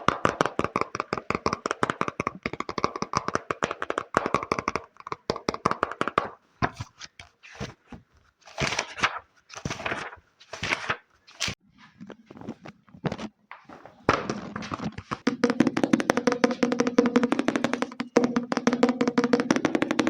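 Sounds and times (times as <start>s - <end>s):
fast tapping on a book: 0.0s - 6.8s, 14.1s - 20.0s.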